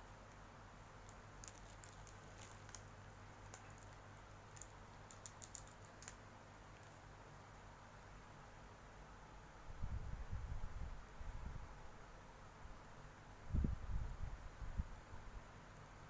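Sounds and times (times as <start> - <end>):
low steady hum: 0.0 - 16.0
plastic pieces clicking: 3.5 - 6.2.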